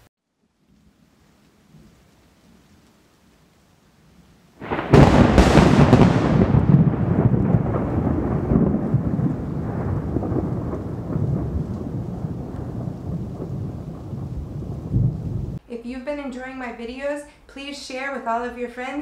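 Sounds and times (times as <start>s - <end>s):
thunder crack and rumble: 4.6s - 15.6s.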